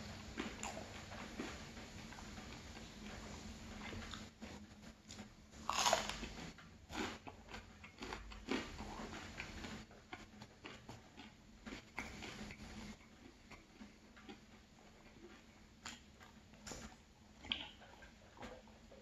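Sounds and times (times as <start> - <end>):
biting into toast: 5.1 - 16.9
chewing mouth clicks: 7.0 - 18.6.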